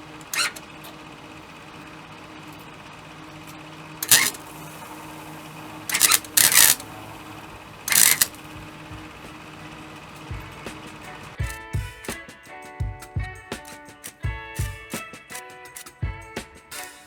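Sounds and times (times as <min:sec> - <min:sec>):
welder short bursts: 0:00.0 - 0:01.1, 0:04.0 - 0:07.2, 0:07.8 - 0:08.5.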